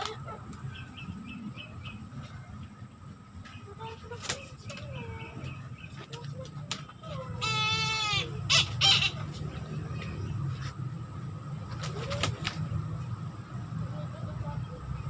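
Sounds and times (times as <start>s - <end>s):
bird of prey calling: 7.2s - 9.3s.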